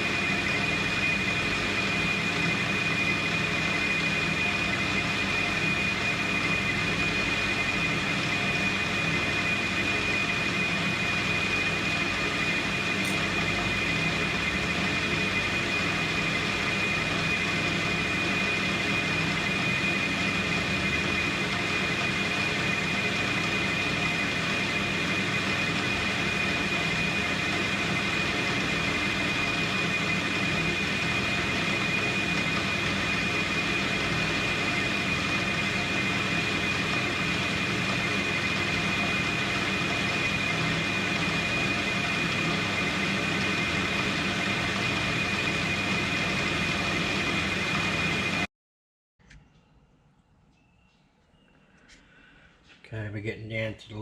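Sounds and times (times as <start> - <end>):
metal lathe running with whine: 0.0 - 48.5.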